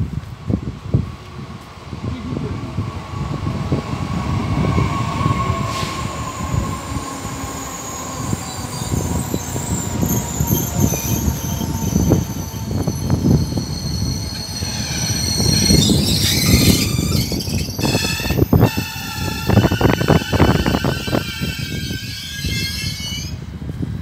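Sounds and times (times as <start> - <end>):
train wheels rumbling on rail: 0.0 - 24.0
wheel and brake squeal: 5.6 - 23.4.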